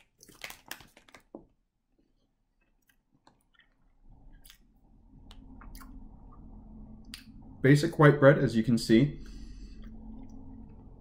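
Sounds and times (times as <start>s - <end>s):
low steady hum: 1.8s - 11.0s
person chewing a sandwich: 2.0s - 6.5s.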